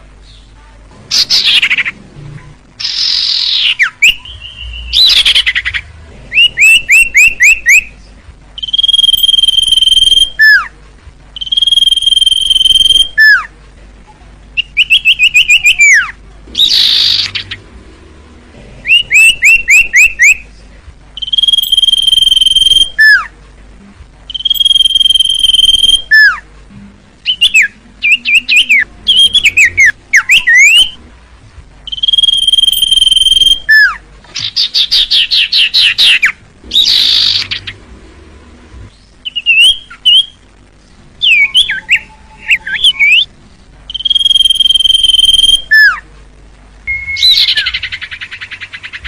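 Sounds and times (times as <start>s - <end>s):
bird singing whistled phrases: 2.8s - 7.9s, 8.6s - 10.7s, 11.4s - 13.5s, 14.6s - 17.6s, 18.8s - 20.4s, 21.2s - 23.3s, 24.3s - 26.4s, 27.2s - 31.0s, 31.9s - 37.7s, 39.2s - 40.4s, 41.2s - 43.3s, 43.9s - 46.0s, 46.9s - 49.0s.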